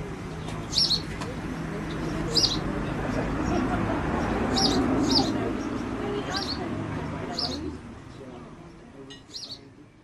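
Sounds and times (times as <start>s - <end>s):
murmur of distant voices: 0.0s - 10.0s
small bird chirping: 0.4s - 2.7s, 4.2s - 6.6s, 7.3s - 7.8s, 9.2s - 9.7s.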